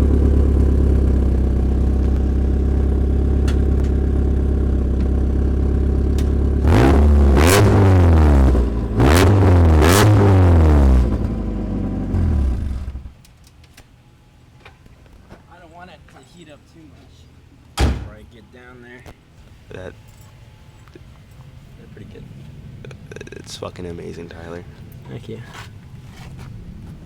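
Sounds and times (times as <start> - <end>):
car engine idling and revving: 0.0 - 13.2.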